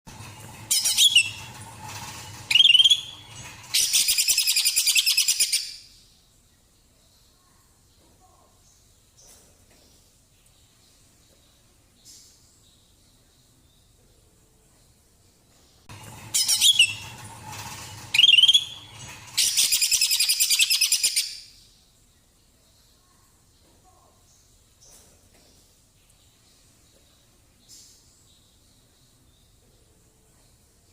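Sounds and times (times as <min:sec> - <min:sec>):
bird calling with rattling trill: 0:00.1 - 0:06.1, 0:15.8 - 0:21.7.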